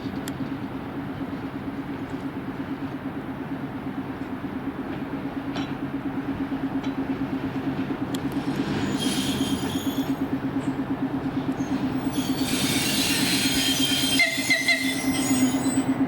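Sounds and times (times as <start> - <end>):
train hum on track: 0.0 - 16.0
rail clicks: 4.1 - 16.0
wheel squeal: 8.6 - 10.2, 11.6 - 16.0.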